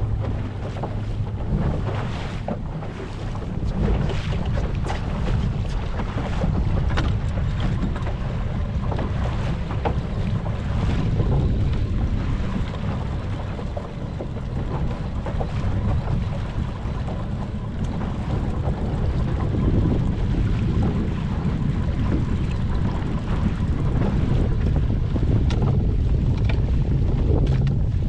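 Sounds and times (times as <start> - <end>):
boat motor rumbling: 0.0 - 28.0
wind buffeting microphone: 0.0 - 28.0.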